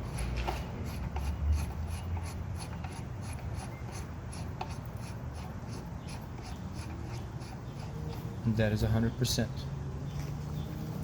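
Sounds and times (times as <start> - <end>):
knob rubbing rasp: 0.0 - 8.3.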